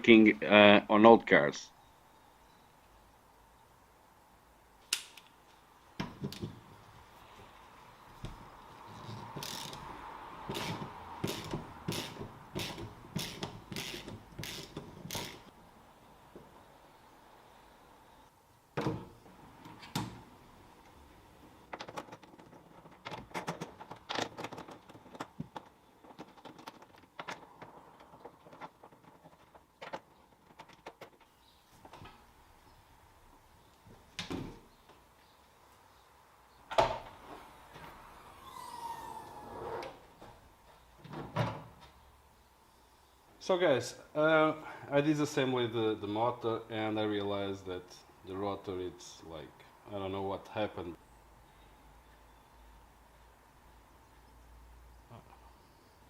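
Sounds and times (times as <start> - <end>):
hand tool clicking: 10.5 - 15.5.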